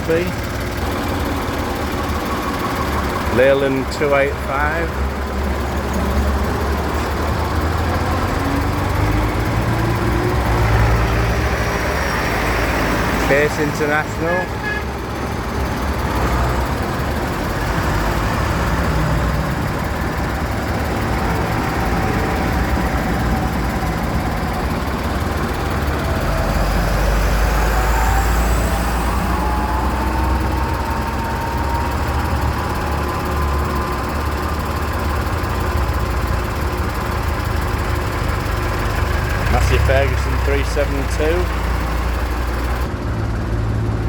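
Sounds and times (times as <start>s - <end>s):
tractor engines rumbling: 0.0s - 44.0s
rising whine: 15.9s - 36.6s.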